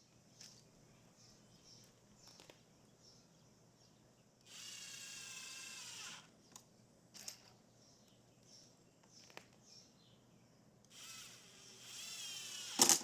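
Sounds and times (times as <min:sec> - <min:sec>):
power drill motor whine: 0:04.5 - 0:06.3, 0:10.9 - 0:13.0.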